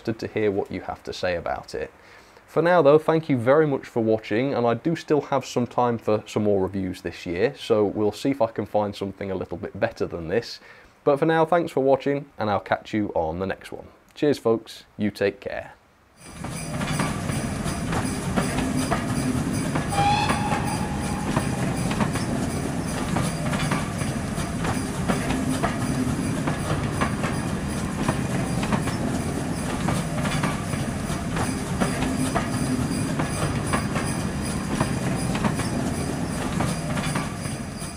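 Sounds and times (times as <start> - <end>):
train coaches rumbling past: 16.2 - 37.9
wheels clicking over rail joints: 16.2 - 37.9
brief high tone: 19.9 - 22.6.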